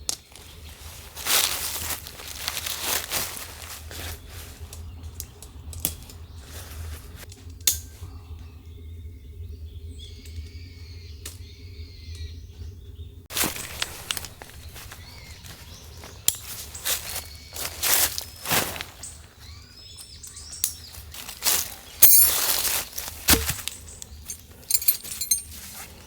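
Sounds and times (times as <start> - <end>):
small birds chirping: 0.0 - 26.0
rustling: 0.3 - 4.8, 13.3 - 19.5, 20.9 - 26.0.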